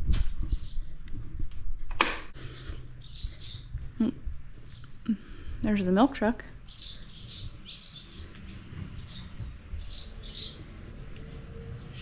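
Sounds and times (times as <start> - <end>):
steady low rumble: 0.0 - 12.0
small birds chirping: 0.4 - 0.9, 2.4 - 5.4, 6.5 - 11.0.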